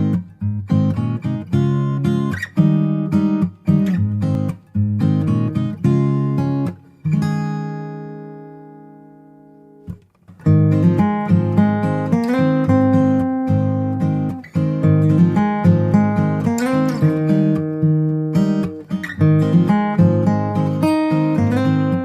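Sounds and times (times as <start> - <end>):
strummed acoustic guitar chords: 0.0 - 22.0.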